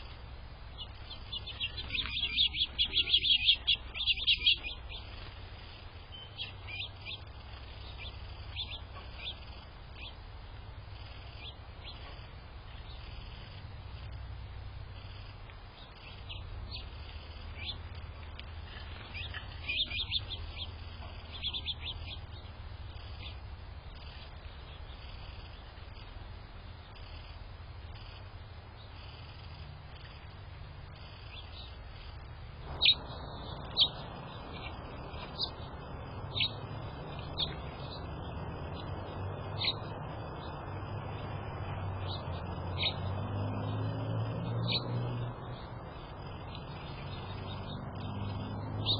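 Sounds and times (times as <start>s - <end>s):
small songbirds chirping: 0.0s - 48.9s
steady low hum: 0.0s - 48.9s.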